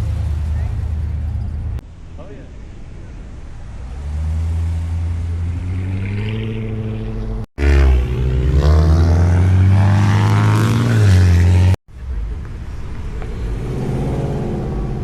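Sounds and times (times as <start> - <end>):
car engine revving: 3.6 - 11.8.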